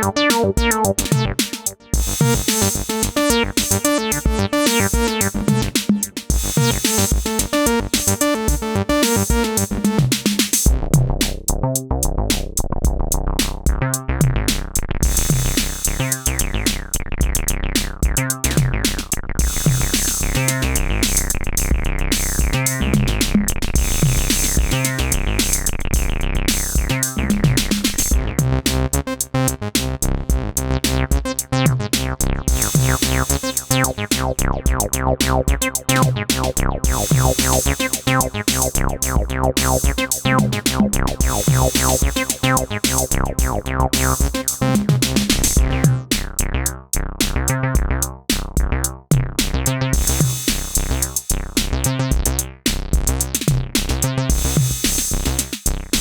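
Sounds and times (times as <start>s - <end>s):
drum machine beat: 0.0s - 56.0s
synthesizer bass line: 0.0s - 56.0s.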